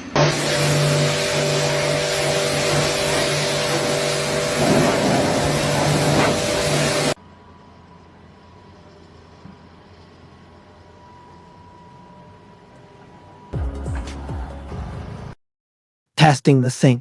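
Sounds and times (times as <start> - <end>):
motor humming with hiss: 0.0 - 13.5.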